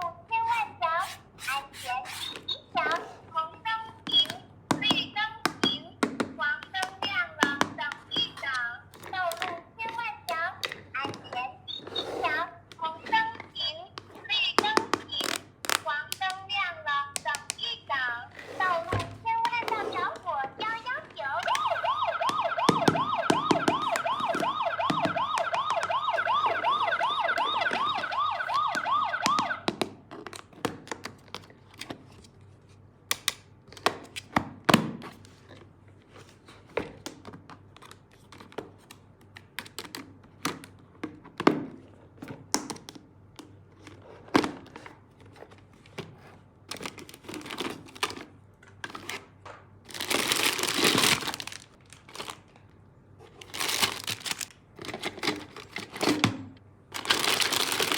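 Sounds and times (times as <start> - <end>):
electronic toy siren warbling: 21.3 - 29.6
packaging crinkling: 49.8 - 56.1, 56.9 - 57.9.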